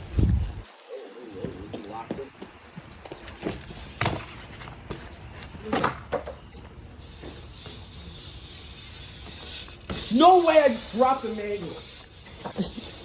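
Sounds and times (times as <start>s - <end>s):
bike tyres rolling on pavement: 0.0s - 13.0s
bike knocks: 3.4s - 6.5s, 9.2s - 10.6s.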